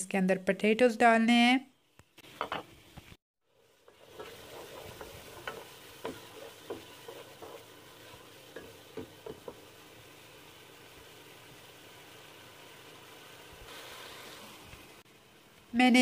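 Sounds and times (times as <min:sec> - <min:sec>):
onions and spices sizzling in oil: 0:02.2 - 0:16.0
wooden spoon knocking a pot: 0:04.1 - 0:07.7, 0:08.5 - 0:09.7.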